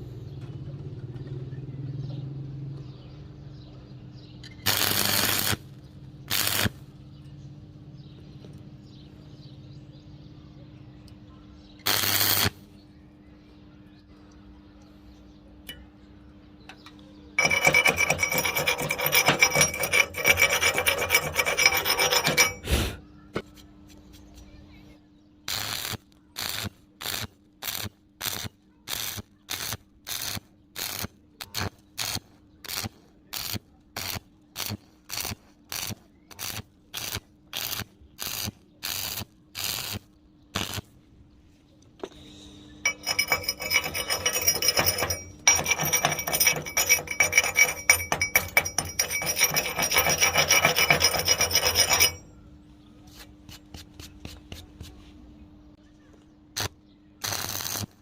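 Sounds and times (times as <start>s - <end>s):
harsh crackling with hiss: 11.9s - 12.6s, 25.5s - 40.0s, 56.6s - 58.0s
hand scraping on metal: 17.4s - 23.0s, 42.8s - 52.3s.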